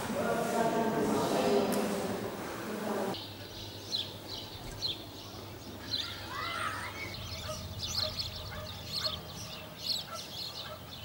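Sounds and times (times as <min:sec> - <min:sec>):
small birds chirping: 0:03.1 - 0:11.0.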